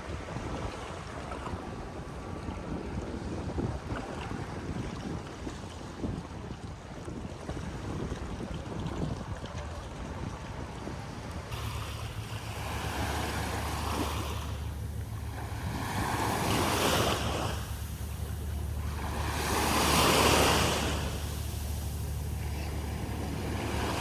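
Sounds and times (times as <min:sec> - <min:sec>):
wind on microphone: 0:00.0 - 0:24.0
waves washing on shore: 0:10.5 - 0:24.0
low rumble: 0:11.2 - 0:24.0.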